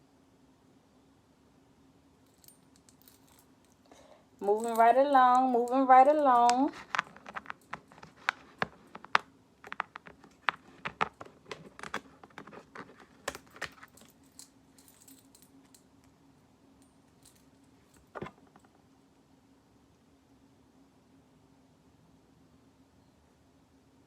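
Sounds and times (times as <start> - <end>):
plastic nails clicking and tapping: 4.6 - 13.9.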